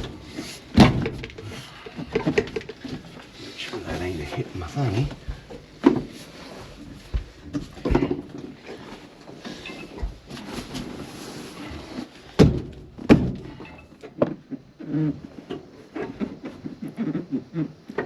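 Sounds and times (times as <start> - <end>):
heavy thumps and knocking: 0.0 - 3.1, 4.0 - 8.4.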